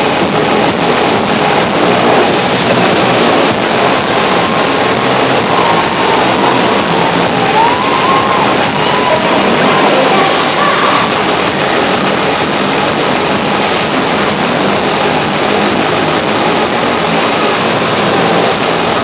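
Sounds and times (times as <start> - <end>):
motorcycle engines running hard: 0.0 - 7.5.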